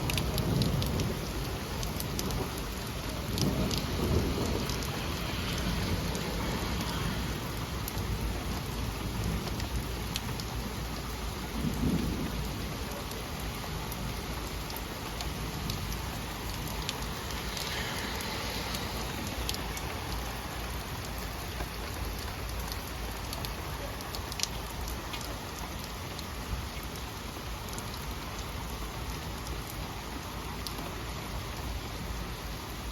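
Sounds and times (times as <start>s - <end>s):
low roll of thunder: 0.0s - 10.0s, 11.3s - 14.7s
heavy rain: 0.0s - 32.9s.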